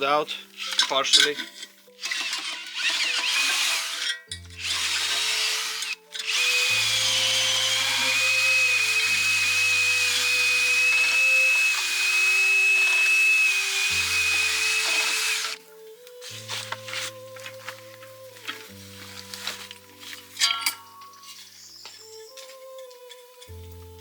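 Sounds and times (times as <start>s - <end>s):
background music: 0.0s - 24.0s
electric drill boring into wood: 2.0s - 15.6s.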